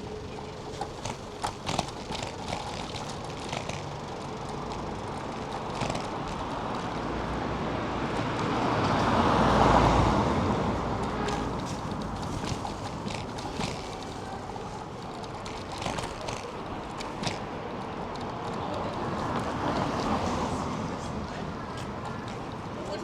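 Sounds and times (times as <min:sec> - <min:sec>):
city street traffic: 0:00.0 - 0:23.0
vehicle passing: 0:00.0 - 0:23.0
sharp clicks and rattles: 0:00.1 - 0:07.1, 0:11.0 - 0:20.1.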